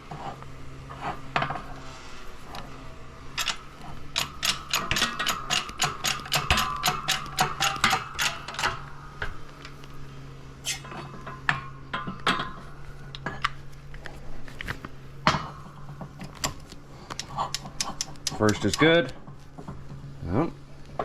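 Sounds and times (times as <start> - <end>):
steady low hum: 0.0 - 21.0
metal clinks and clunks: 2.4 - 9.9, 10.7 - 13.6, 15.3 - 19.9
rapid metal clicking: 3.3 - 9.9, 16.2 - 19.2.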